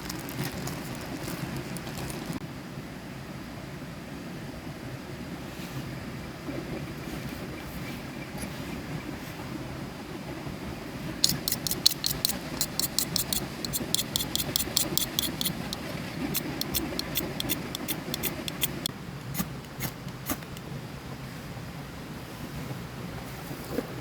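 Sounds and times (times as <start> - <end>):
crackling clicks: 11.2 - 18.9.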